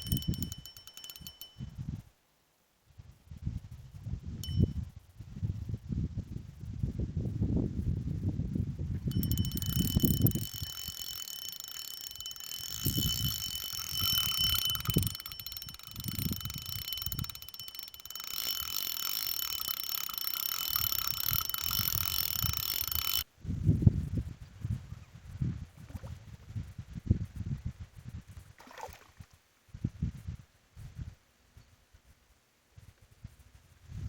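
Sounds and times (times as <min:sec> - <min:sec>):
fishing reel whirring and ratcheting: 0:00.0 - 0:01.7, 0:04.4 - 0:04.7, 0:09.1 - 0:23.3.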